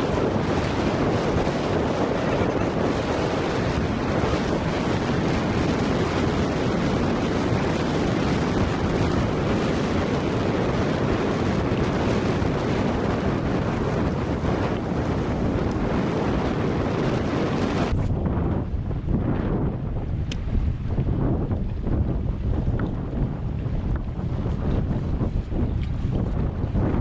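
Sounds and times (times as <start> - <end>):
water washing around kayak: 0.0 - 17.9
wind buffeting microphone: 0.0 - 27.0.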